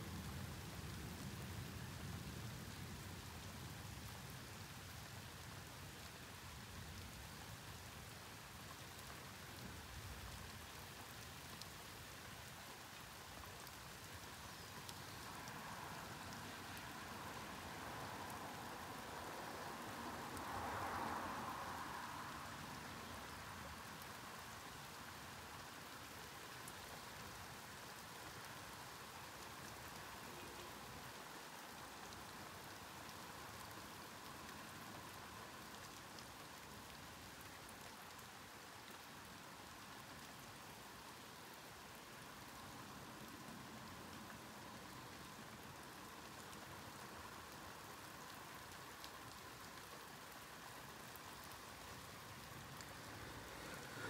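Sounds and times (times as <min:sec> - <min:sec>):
steady rain falling: 0:00.0 - 0:54.0
wash of noise: 0:15.2 - 0:23.9, 0:50.8 - 0:54.0.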